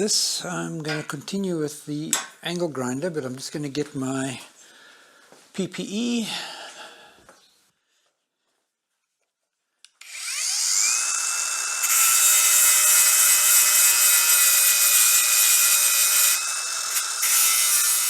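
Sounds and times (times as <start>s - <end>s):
angle grinder grinding metal: 10.0s - 18.0s.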